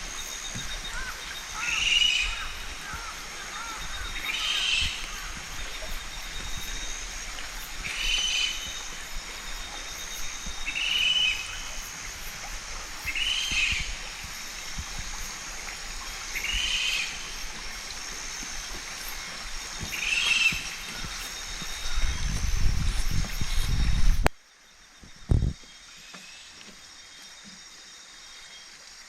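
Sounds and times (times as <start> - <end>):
outdoor ambience hiss: 0.0 - 29.0
bird calling: 0.4 - 7.1, 18.5 - 22.6.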